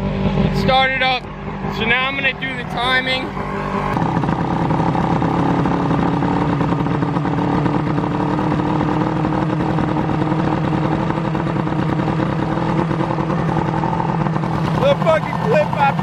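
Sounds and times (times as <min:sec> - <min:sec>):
outboard motor fast idle: 0:04.0 - 0:16.0.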